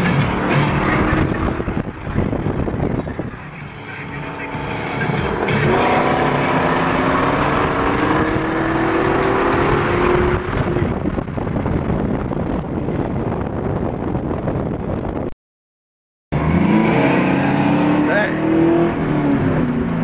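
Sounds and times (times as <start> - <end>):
car engine accelerating: 0.0 - 15.2, 16.3 - 20.0
steady rushing noise: 0.1 - 15.3.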